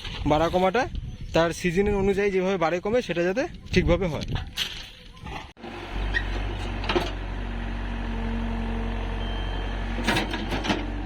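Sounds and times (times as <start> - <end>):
heavy engine running: 5.6 - 11.0.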